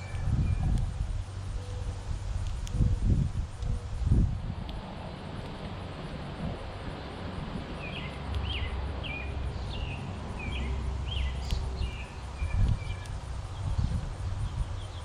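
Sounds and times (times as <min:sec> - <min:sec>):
low outdoor rumble: 0:00.0 - 0:15.0
small bird chirping: 0:07.8 - 0:15.0.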